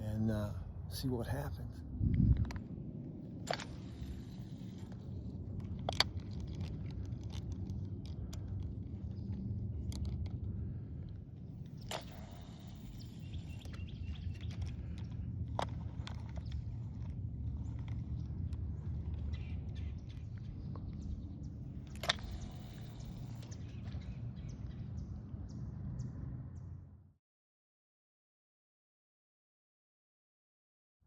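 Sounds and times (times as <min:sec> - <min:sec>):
low outdoor rumble: 0:00.0 - 0:27.1.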